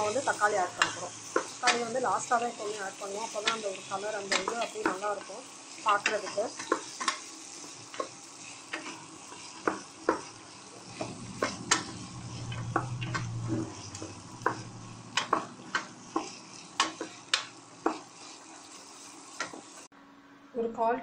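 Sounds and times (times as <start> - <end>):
vegetables sizzling: 0.0 - 19.9
low hum: 10.7 - 16.0.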